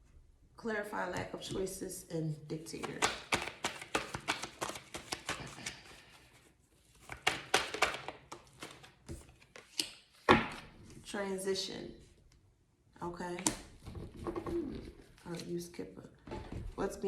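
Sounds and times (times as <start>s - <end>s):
cards shuffled by hand: 2.7s - 10.7s.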